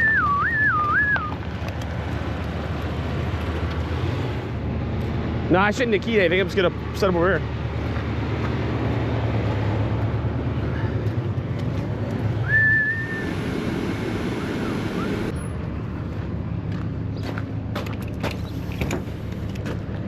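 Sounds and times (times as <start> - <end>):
truck engine idling: 0.0 - 15.4
high whistle-like squeak: 12.4 - 13.3.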